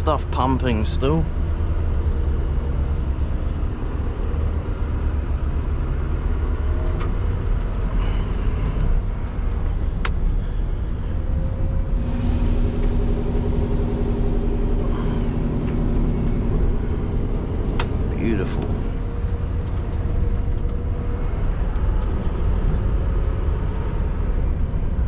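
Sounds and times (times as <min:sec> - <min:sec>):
truck diesel engine rumble: 0:04.8 - 0:24.1.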